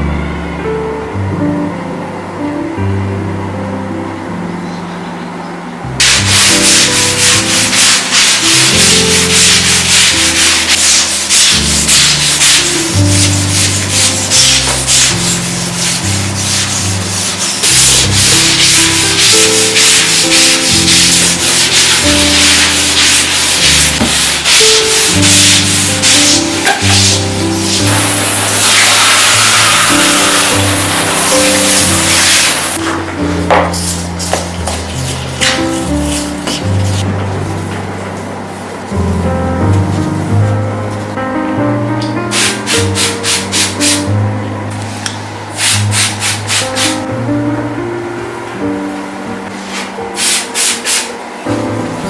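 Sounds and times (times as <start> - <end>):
acoustic guitar music: 5.9 - 45.3
stiff brush scrubbing: 6.0 - 33.0, 33.6 - 37.0.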